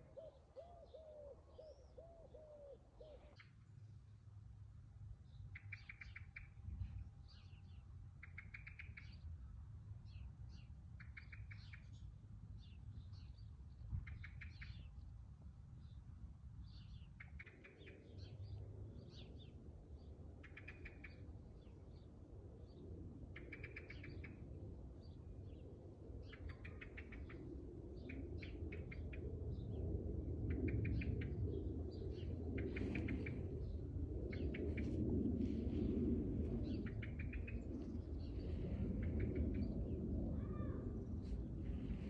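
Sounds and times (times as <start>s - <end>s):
low rumble: 28.4s - 42.0s.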